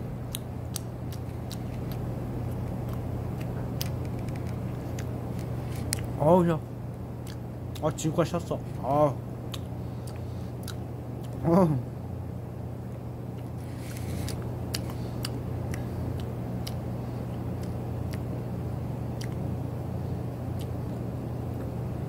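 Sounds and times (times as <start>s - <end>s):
steady low hum: 0.0s - 22.0s
person chewing gummy candy: 0.3s - 6.2s, 7.2s - 8.0s, 9.5s - 11.5s, 13.4s - 18.3s, 19.1s - 19.5s.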